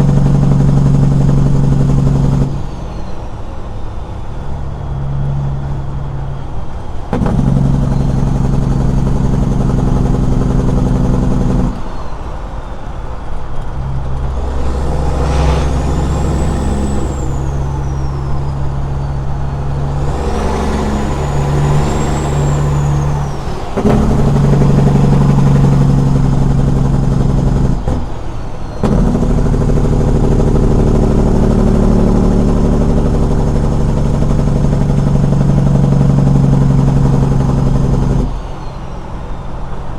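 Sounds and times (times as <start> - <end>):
diesel truck engine under load: 0.0 - 39.9
faint high whistle: 2.5 - 7.2, 11.7 - 26.9.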